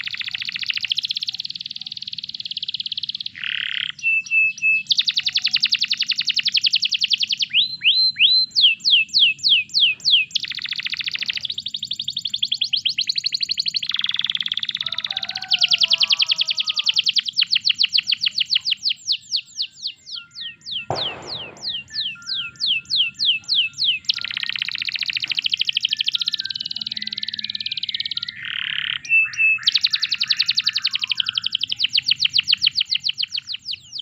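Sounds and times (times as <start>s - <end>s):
canary singing: 0.0s - 34.0s
burst of noise: 20.9s - 22.0s.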